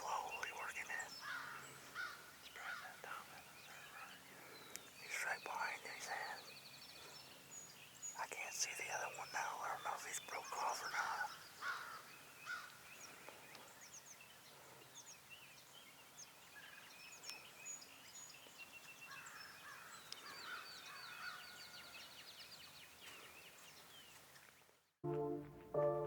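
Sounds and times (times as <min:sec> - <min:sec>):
birds chirping and whistling: 0:00.0 - 0:15.9
brass music: 0:25.0 - 0:26.0.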